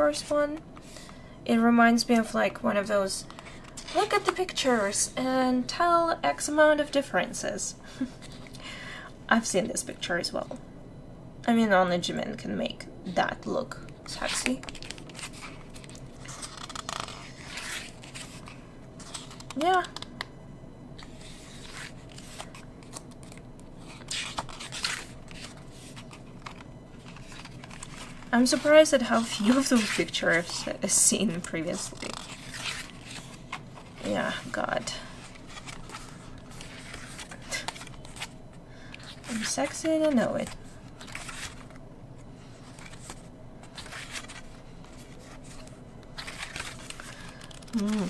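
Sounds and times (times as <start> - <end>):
pages of photobook turning: 14.2 - 20.1, 21.0 - 30.7, 31.3 - 34.5, 35.2 - 38.3, 40.4 - 41.8, 42.6 - 48.0.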